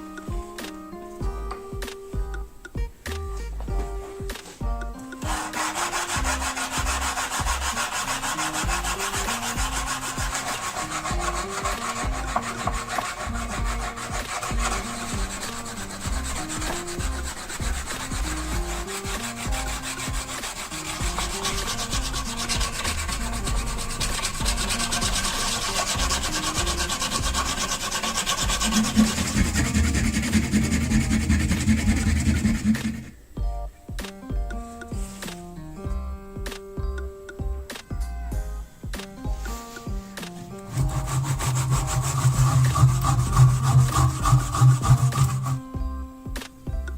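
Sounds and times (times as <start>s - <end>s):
background music with bass line: 0.0s - 46.9s
sanding wood: 5.2s - 33.1s, 40.6s - 45.6s.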